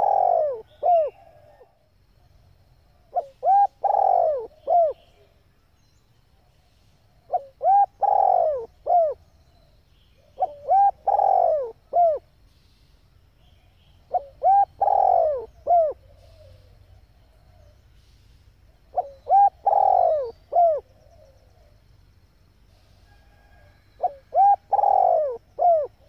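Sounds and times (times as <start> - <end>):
dove cooing: 0.0 - 1.8, 3.1 - 5.3, 7.3 - 9.2, 10.2 - 12.3, 14.1 - 21.8, 22.7 - 26.0.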